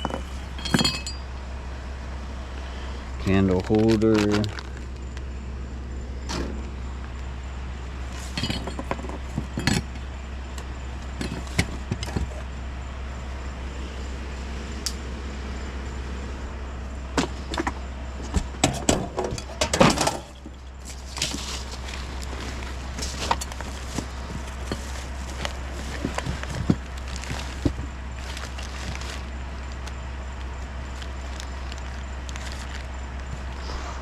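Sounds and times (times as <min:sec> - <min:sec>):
small hard objects clinking: 0:00.0 - 0:01.4, 0:03.2 - 0:05.2, 0:08.1 - 0:10.0, 0:20.2 - 0:33.5
low hum: 0:00.0 - 0:34.0.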